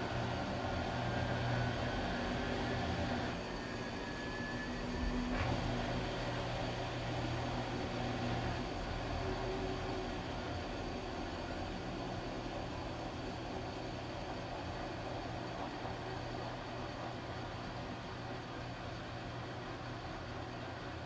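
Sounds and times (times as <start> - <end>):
washing machine humming: 0.0 - 21.0.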